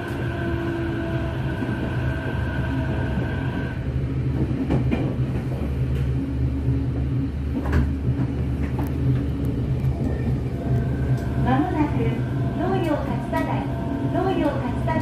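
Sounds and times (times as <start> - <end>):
train carriage rumble: 0.0 - 15.0.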